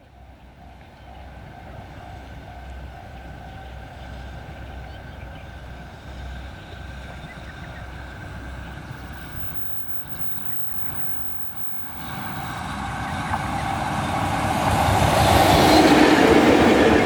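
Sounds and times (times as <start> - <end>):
freight train rumble: 0.0 - 17.0
faint steady whine: 5.5 - 13.8.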